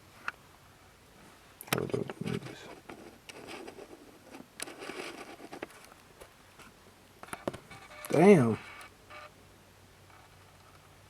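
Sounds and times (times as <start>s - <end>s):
faint rustling: 1.2s - 9.3s.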